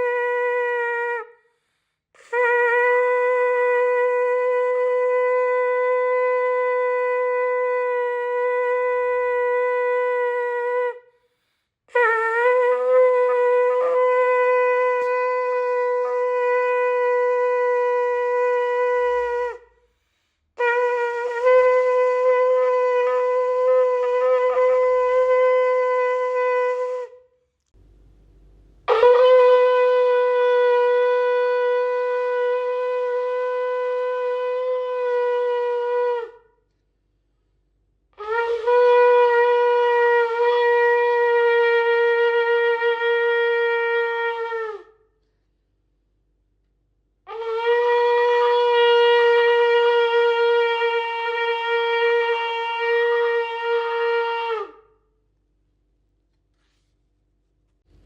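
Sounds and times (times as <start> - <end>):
shofar long blasts: 0.0 - 1.4, 2.2 - 11.1, 11.9 - 19.8, 20.6 - 36.7, 38.2 - 45.1, 47.3 - 55.1.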